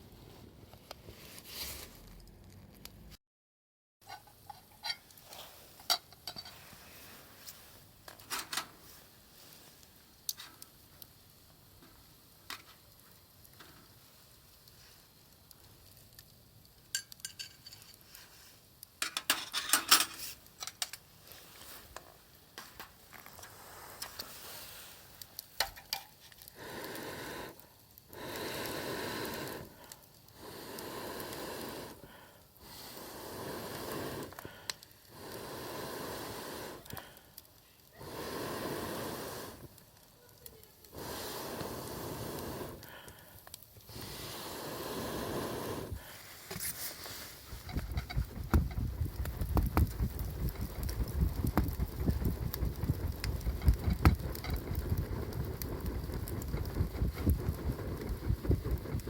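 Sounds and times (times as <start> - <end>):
person blowing on a fire: 23.3 - 25.2, 26.4 - 59.0.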